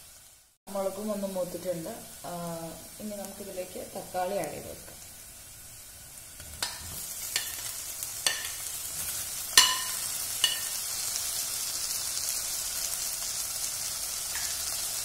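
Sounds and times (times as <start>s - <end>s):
food sizzling in hot fat: 0.0s - 15.0s
spoon clinking on plate and pan: 6.6s - 8.7s, 9.6s - 10.9s, 14.3s - 14.8s.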